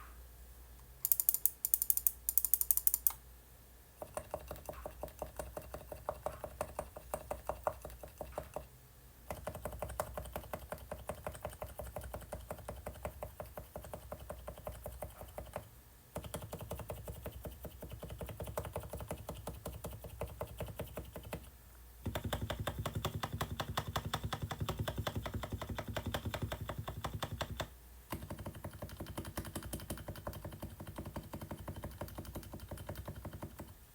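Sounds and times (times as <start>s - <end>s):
sharper key clicks: 1.0s - 3.2s
soft muted keyboard typing: 1.0s - 3.2s, 4.0s - 8.7s, 9.3s - 33.8s.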